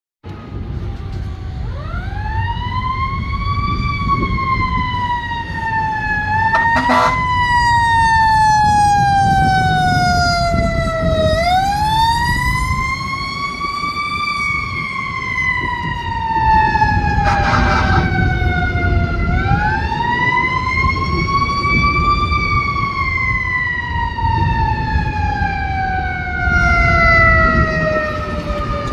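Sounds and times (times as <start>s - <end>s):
truck low rumble: 0.2s - 28.9s
fire engine siren wailing: 0.3s - 28.9s
short horn blasts: 6.5s - 7.3s, 17.2s - 18.3s.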